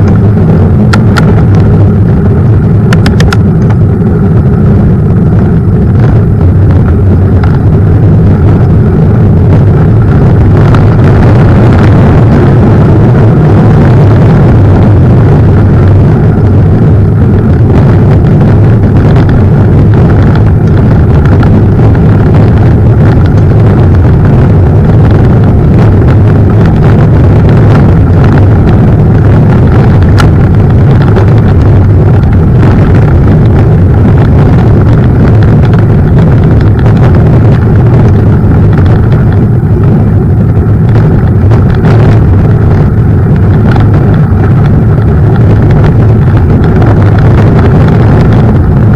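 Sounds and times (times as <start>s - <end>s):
wind and rolling rumble: 0.0s - 48.9s.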